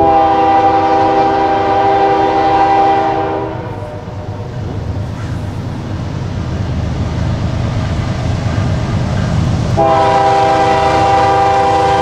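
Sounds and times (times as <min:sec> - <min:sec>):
locomotive air horn chord: 0:00.0 - 0:04.5, 0:09.8 - 0:12.0.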